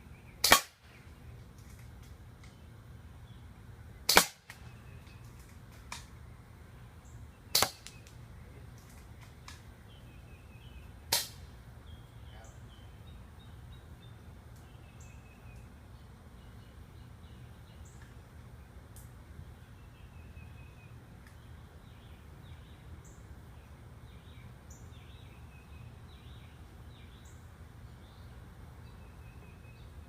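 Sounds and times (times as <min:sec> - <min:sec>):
airsoft rifle shots: 0:00.4 - 0:00.8, 0:04.1 - 0:04.6, 0:07.5 - 0:08.0, 0:11.1 - 0:11.4.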